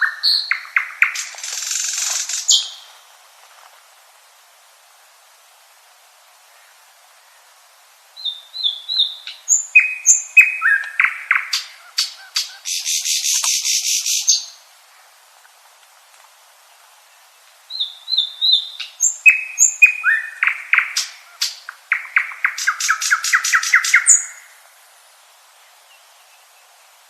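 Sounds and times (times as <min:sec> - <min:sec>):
nightingale singing: 0:00.0 - 0:03.1, 0:08.2 - 0:14.7, 0:17.0 - 0:24.6
bird buzzing rattle: 0:01.2 - 0:02.6.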